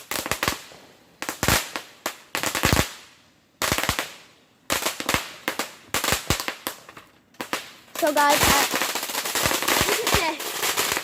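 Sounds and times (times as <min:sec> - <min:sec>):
firecrackers banging: 0:03.6 - 0:11.0.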